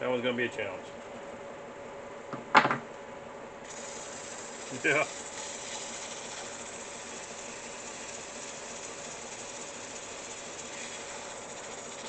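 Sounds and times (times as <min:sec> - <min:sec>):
faint motor hum: 0:00.0 - 0:12.0
cleaning tool hissing whir: 0:03.6 - 0:12.0.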